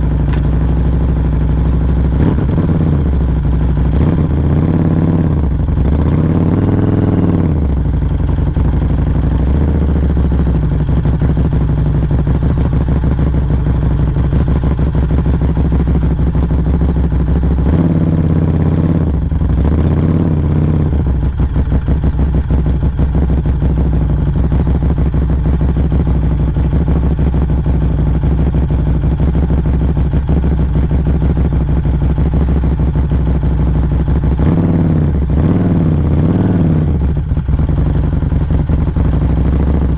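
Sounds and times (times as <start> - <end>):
motorcycle exhaust: 0.0 - 39.9.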